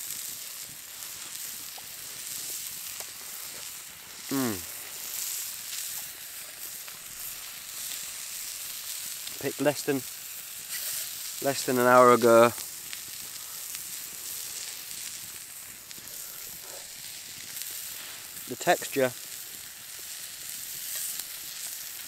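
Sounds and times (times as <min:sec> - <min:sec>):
steak sizzling in a skillet: 0:00.0 - 0:22.0
man saying mmm: 0:04.2 - 0:04.7.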